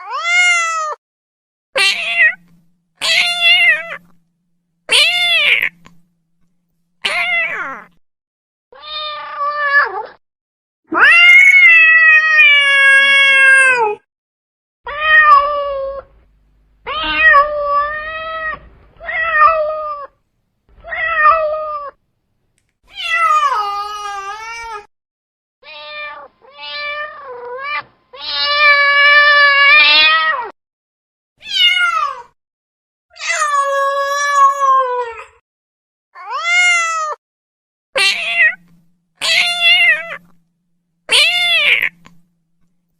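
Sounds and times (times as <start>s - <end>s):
cat meowing: 1.8s - 4.2s, 4.9s - 6.1s, 7.0s - 8.0s, 8.8s - 10.2s, 10.9s - 14.0s, 14.9s - 16.1s, 16.8s - 20.2s, 20.8s - 22.0s, 25.6s - 30.5s, 31.4s - 32.3s, 36.2s - 37.2s, 38.0s - 40.4s, 41.1s - 42.2s
cat yowling: 1.8s - 4.2s, 4.9s - 5.8s, 7.0s - 8.0s, 10.9s - 14.0s, 14.9s - 16.1s, 16.9s - 20.2s, 25.6s - 30.5s, 36.2s - 37.2s, 38.0s - 40.4s, 41.1s - 42.2s.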